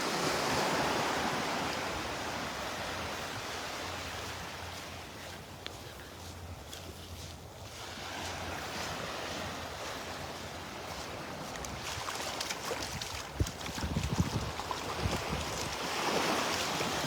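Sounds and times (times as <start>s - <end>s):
surf washing onto beach: 0.0s - 5.2s, 7.8s - 17.0s
wind buffeting microphone: 10.9s - 17.0s.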